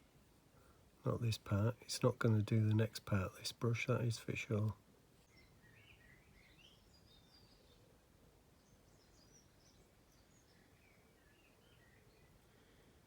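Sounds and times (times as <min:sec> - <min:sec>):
faint bird chirps: 0:05.2 - 0:13.0.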